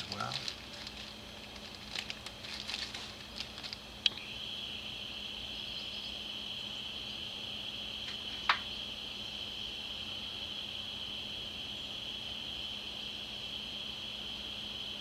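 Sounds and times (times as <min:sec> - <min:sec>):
small metal parts clicking and scratching: 0:00.1 - 0:03.8.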